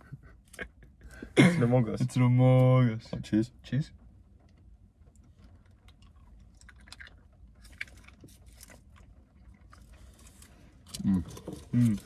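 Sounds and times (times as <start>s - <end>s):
low steady rumble: 0.0s - 12.0s
chewing candy: 5.7s - 12.0s
wet mouth clicks and smacks: 6.0s - 8.1s.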